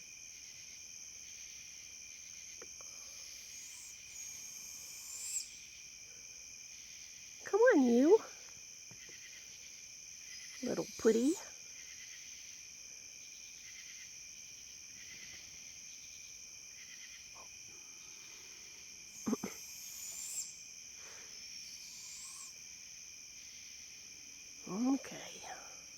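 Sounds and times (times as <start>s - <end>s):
crickets and insects chirping: 0.0s - 25.9s
owl screeching: 3.2s - 5.7s, 10.3s - 11.4s, 19.2s - 20.7s, 21.6s - 22.5s
owl calling: 3.2s - 5.8s, 10.3s - 11.4s, 19.1s - 20.7s, 21.5s - 22.6s.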